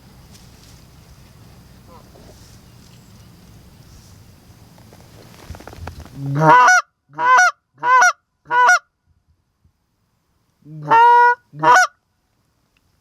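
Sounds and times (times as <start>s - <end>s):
goose honking: 1.8s - 2.4s, 6.2s - 8.8s, 10.8s - 11.9s.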